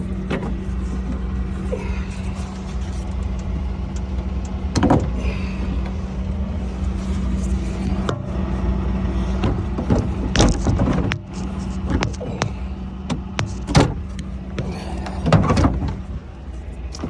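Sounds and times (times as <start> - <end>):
steady low hum: 0.0 - 17.0
panel fasteners clicking: 9.3 - 16.3.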